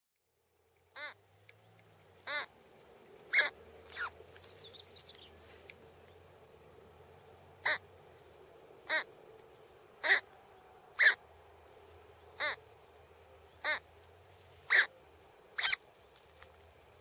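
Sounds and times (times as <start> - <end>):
bird harsh calls: 0.9 - 1.2, 2.2 - 2.6, 3.3 - 5.6, 7.6 - 7.9, 8.8 - 9.1, 10.0 - 10.3, 10.9 - 11.2, 12.3 - 12.7, 13.4 - 13.9, 14.6 - 15.0, 15.6 - 15.8.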